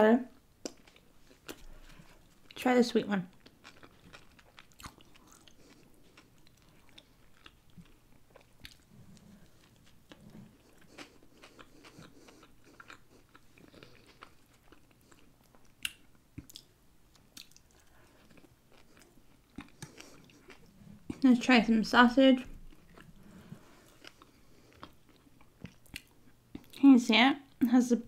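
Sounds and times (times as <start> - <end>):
chewing bread roll: 0.4 - 21.4, 22.4 - 27.6.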